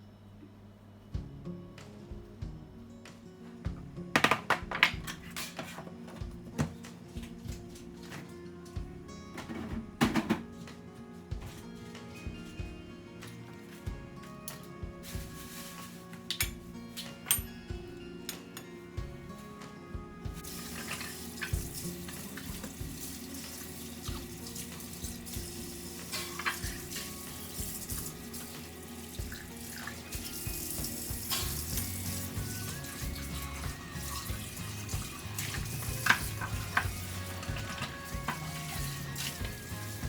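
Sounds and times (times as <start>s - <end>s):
soft background music: 0.0s - 40.0s
tap water running into sink: 20.4s - 40.0s.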